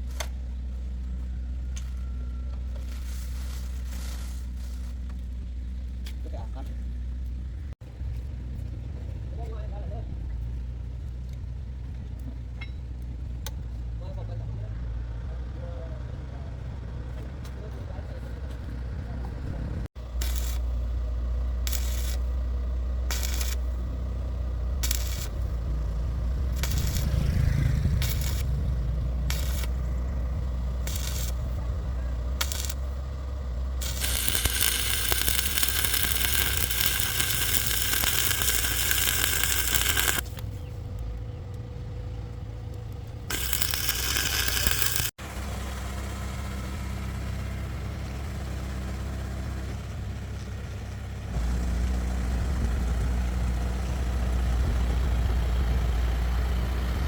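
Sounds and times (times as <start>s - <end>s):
low engine hum: 0.0s - 57.0s
loud hiss: 33.8s - 40.4s, 43.3s - 45.1s.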